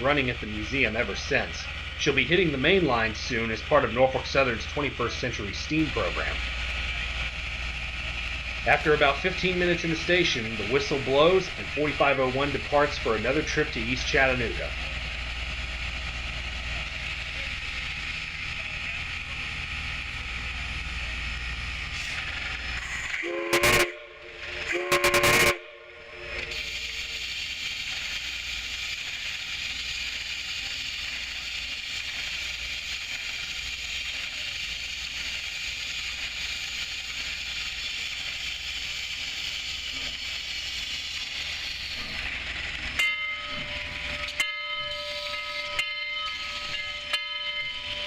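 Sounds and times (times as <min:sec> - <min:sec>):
steady steam hiss: 0:00.0 - 0:48.0
steam whistle blasts: 0:23.2 - 0:27.3.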